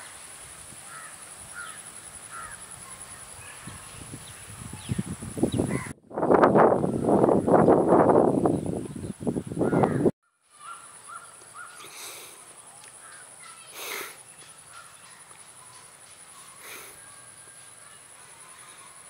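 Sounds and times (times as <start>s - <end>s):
crows cawing: 0.9s - 2.8s, 5.7s - 5.9s, 9.6s - 11.9s, 14.7s - 17.2s.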